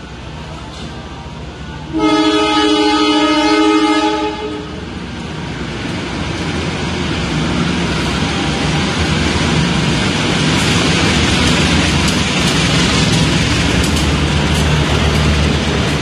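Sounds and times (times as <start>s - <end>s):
train rumble: 0.0s - 16.0s
locomotive horn blast: 1.9s - 4.9s.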